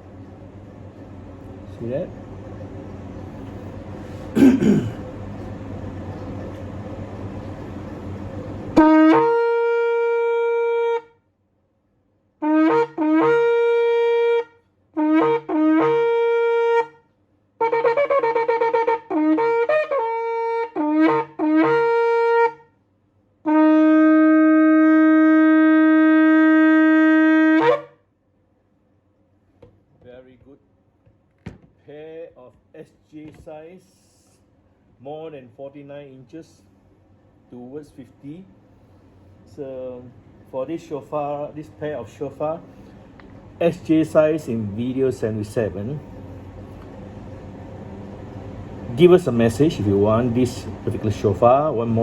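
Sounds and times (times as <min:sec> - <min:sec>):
shofar blasts: 0:08.8 - 0:11.2, 0:12.4 - 0:22.8, 0:23.4 - 0:28.1.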